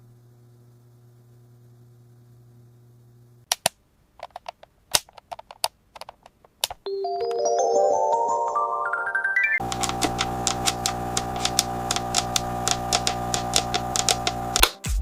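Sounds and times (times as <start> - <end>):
faint hum: 0.0 - 3.5, 9.6 - 14.6
plastic toy pieces clicking: 3.5 - 6.8, 9.6 - 14.7
electronic jingle: 6.9 - 9.6.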